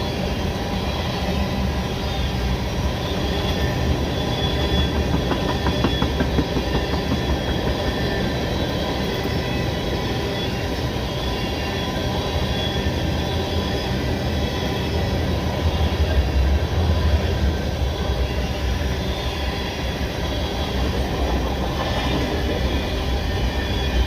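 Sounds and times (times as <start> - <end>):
freight train wheels rumbling on rail: 0.0 - 24.0
wheels squealing: 2.3 - 16.0
wheels clicking over rail joints: 4.3 - 9.4.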